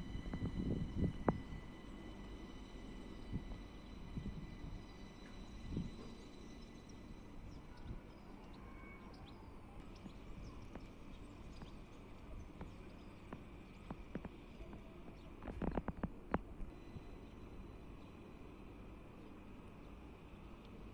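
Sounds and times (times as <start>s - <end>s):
faint outdoor rumble: 0.0s - 20.9s
faint bird chirps: 6.1s - 15.9s
thin high whine: 16.6s - 20.9s.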